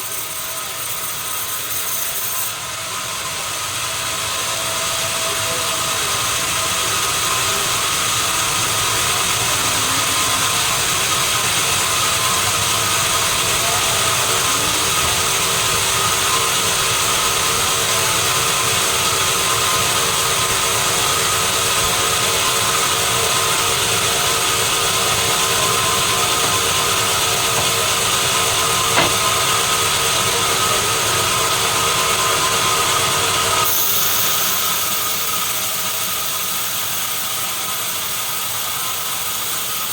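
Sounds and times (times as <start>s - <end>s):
sawmill machinery whine: 0.0s - 39.9s
sharp click: 26.3s - 29.4s.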